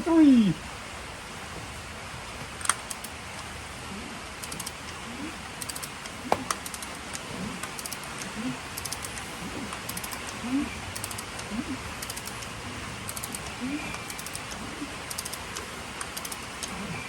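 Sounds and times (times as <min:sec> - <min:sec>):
ratchet wrench clicking: 0:05.6 - 0:05.9, 0:08.8 - 0:09.2, 0:11.0 - 0:12.5, 0:13.1 - 0:16.7.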